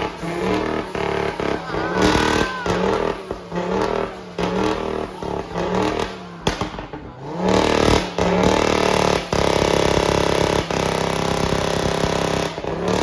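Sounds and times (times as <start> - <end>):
sharp crack: 0.0 - 12.8
car engine revving: 0.0 - 13.0.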